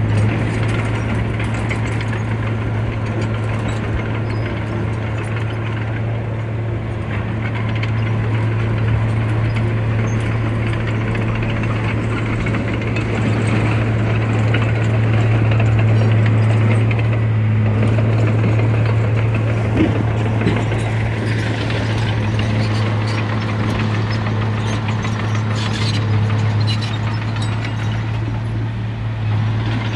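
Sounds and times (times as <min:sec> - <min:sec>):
diesel machinery engine hum: 0:00.0 - 0:29.9
metallic clattering and rattling: 0:19.3 - 0:26.0.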